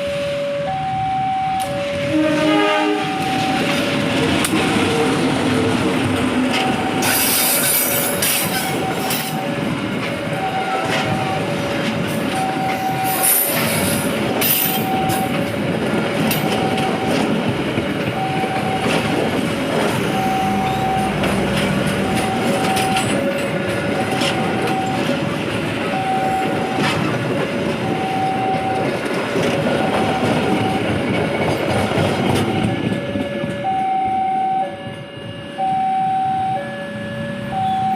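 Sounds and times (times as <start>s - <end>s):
two-tone crossing alarm chime: 0.0s - 4.1s, 6.5s - 9.6s, 10.3s - 13.6s, 14.6s - 17.4s, 18.2s - 19.3s, 20.0s - 21.4s, 22.0s - 25.3s, 25.9s - 27.0s, 27.8s - 29.0s, 29.8s - 31.0s, 32.2s - 37.9s
train cars rumbling over rails: 0.0s - 37.9s
wheels clicking over rail joints: 3.4s - 33.6s.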